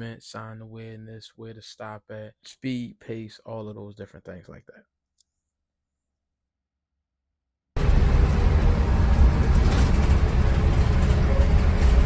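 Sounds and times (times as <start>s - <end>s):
bus engine and road rumble: 7.8s - 12.0s.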